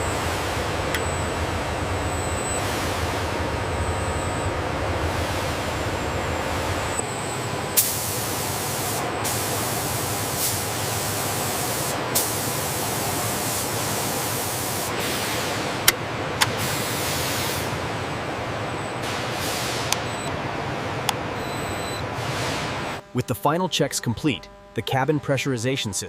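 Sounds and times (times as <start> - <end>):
machinery hum: 0.0 - 26.0
compressed air hissing: 7.8 - 15.7.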